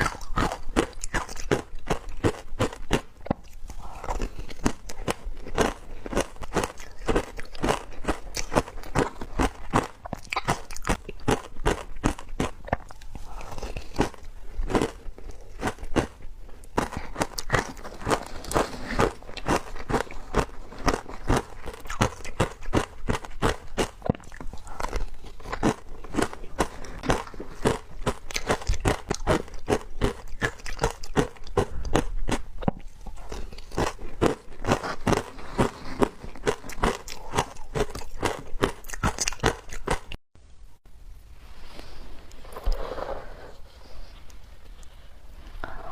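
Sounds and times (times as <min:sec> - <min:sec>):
crunching frozen ice: 0:03.9 - 0:40.2.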